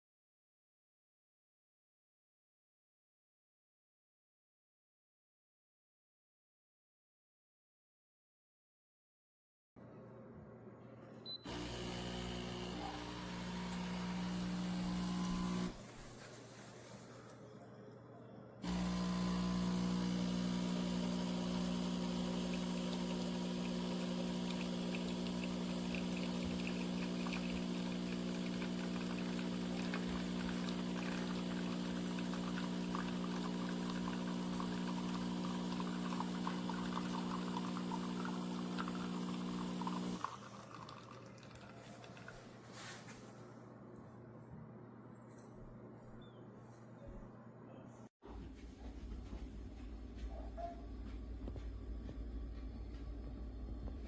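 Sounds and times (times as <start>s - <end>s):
espresso machine pump humming: 11.5s - 15.8s, 18.6s - 41.7s
liquid pouring: 18.7s - 42.5s.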